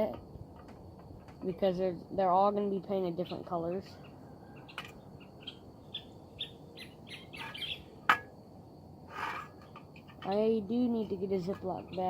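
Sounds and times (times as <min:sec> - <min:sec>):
birds chirping: 0:03.0 - 0:08.2.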